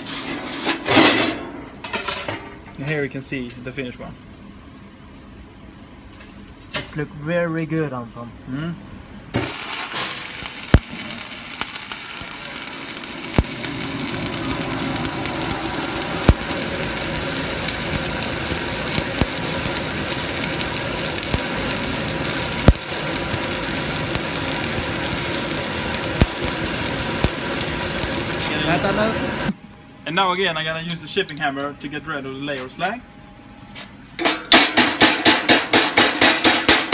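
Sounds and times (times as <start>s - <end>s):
welding arc crackling sizzle: 9.3s - 29.6s, 34.5s - 36.9s.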